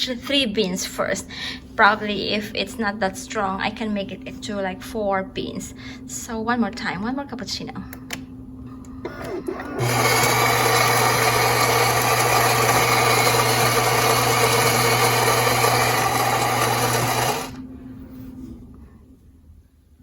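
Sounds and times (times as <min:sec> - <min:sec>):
espresso machine motor whirring: 0:09.1 - 0:17.6.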